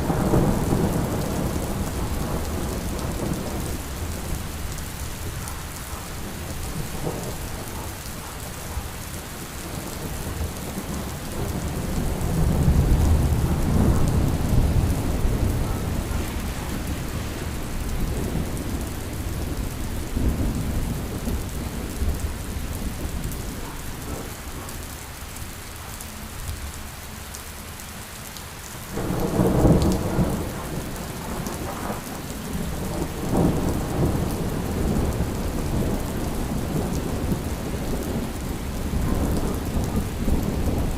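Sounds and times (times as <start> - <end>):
thunder rumbling: 0.0 - 24.7, 28.9 - 40.9
steady rain: 0.0 - 40.9
thunderclap: 11.4 - 19.6.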